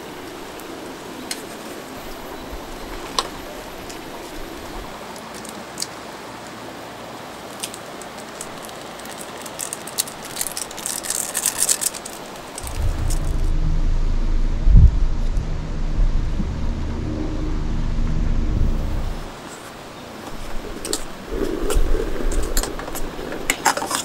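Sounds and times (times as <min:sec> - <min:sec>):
rushing creek: 0:00.0 - 0:13.5
crackling rustle: 0:00.0 - 0:24.0
loud thump: 0:12.6 - 0:19.3
wind buffeting microphone: 0:12.6 - 0:19.4, 0:20.4 - 0:23.6.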